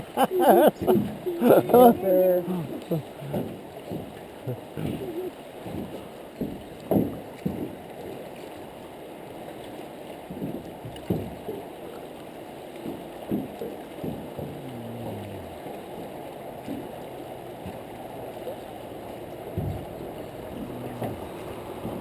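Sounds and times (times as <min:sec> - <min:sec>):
river water rushing around boat: 0:00.0 - 0:22.0.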